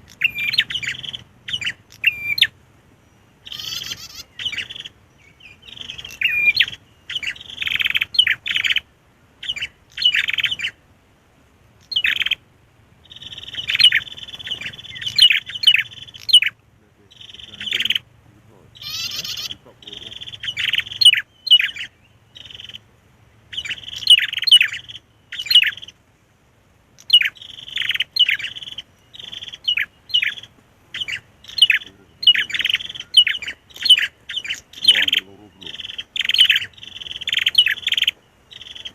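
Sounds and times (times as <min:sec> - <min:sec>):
bird chirping rapidly: 0:00.0 - 0:10.8, 0:11.8 - 0:12.4, 0:13.0 - 0:26.0, 0:26.9 - 0:38.9.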